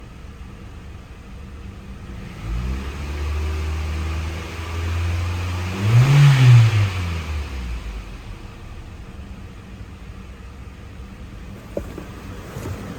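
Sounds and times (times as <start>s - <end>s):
car engine starting and idling: 0.0s - 12.9s
engine revving: 2.0s - 9.4s.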